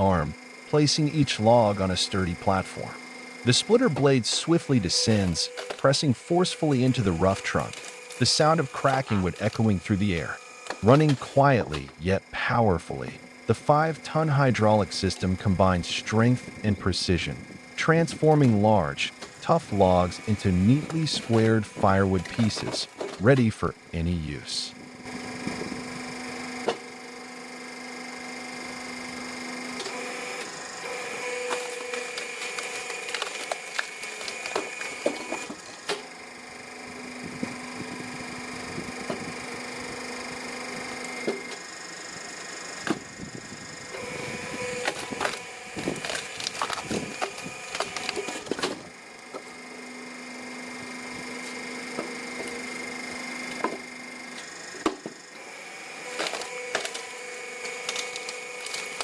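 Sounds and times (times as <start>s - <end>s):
hydraulic machine hum: 0.0s - 59.0s
wood cracking and splintering: 6.6s - 11.2s, 31.4s - 36.0s, 44.0s - 49.5s, 56.1s - 59.0s.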